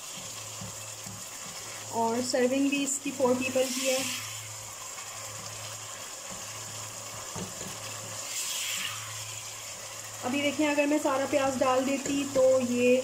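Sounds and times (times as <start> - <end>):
curry sizzling in a pot: 0.0 - 13.0.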